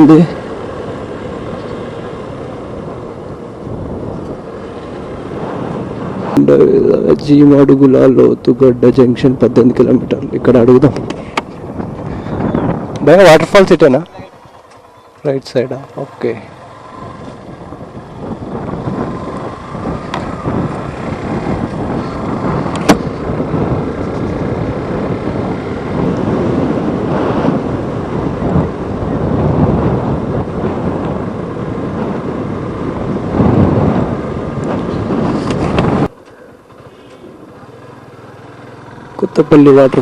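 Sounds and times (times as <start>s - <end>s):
wind buffeting the microphone: 0.0s - 37.7s
motorcycle engine running: 11.0s - 40.0s.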